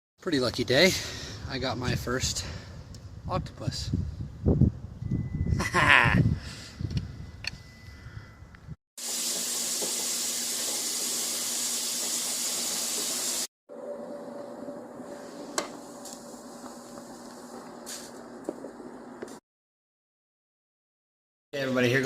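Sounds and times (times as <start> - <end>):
loud steady hiss: 9.0 - 13.5.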